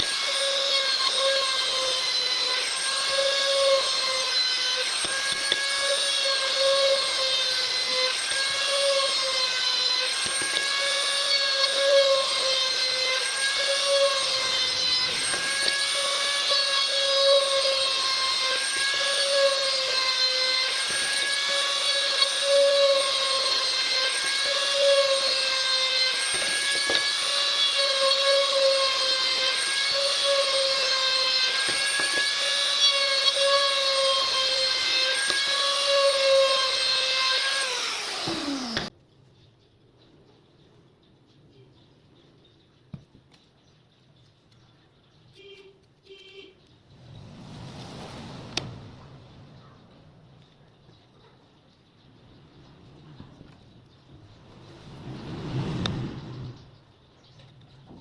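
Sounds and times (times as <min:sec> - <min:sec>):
power tool motor whining: 0:00.0 - 0:38.9.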